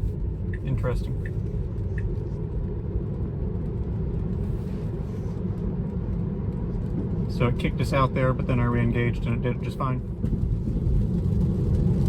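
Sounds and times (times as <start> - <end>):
road noise inside car: 0.0 - 12.0.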